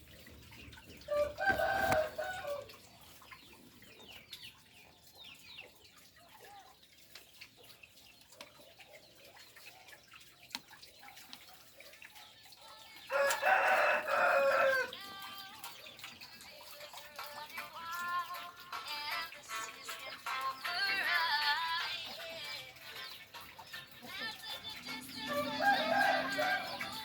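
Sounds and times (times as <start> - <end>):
small birds chirping: 0.0 - 27.0
rooster crowing: 1.1 - 2.7, 13.1 - 14.9, 25.2 - 27.0.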